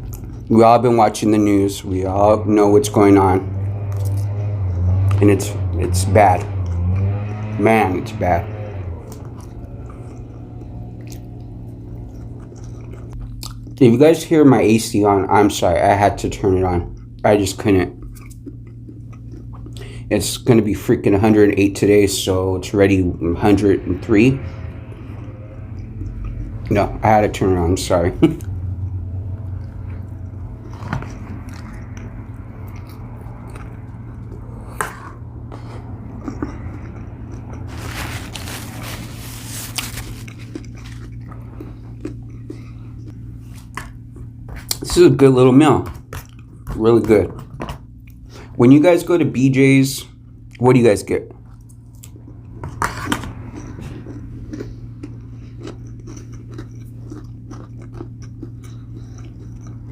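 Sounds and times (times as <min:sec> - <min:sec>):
chewing with smacks: 0:00.0 - 0:15.6, 0:16.5 - 0:22.3, 0:24.0 - 0:45.0, 0:45.6 - 0:48.6, 0:51.3 - 0:59.9
air conditioner hum: 0:00.0 - 0:59.9
dense crunching: 0:37.6 - 0:42.6.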